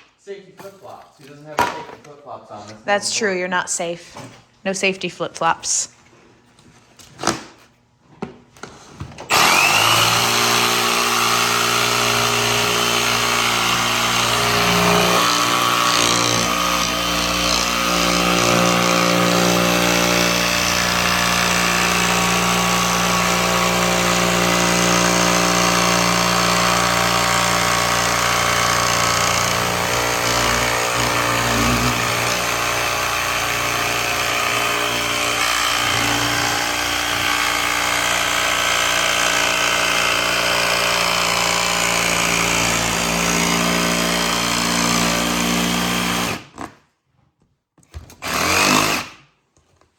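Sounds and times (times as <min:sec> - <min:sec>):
electric power tool running: 0:09.3 - 0:46.4.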